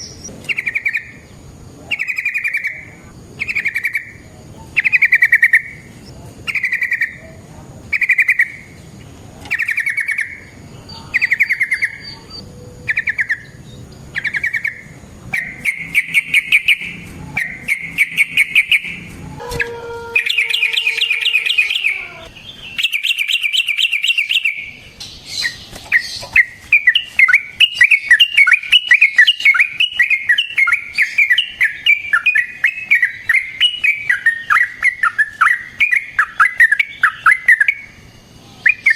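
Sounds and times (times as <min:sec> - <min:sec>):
bird singing: 0:00.0 - 0:38.9.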